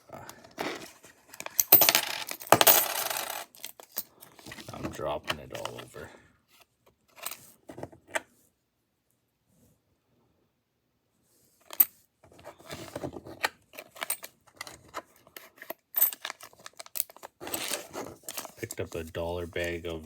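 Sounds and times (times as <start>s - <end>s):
coins clicking and clattering: 1.4s - 4.1s, 15.4s - 18.8s.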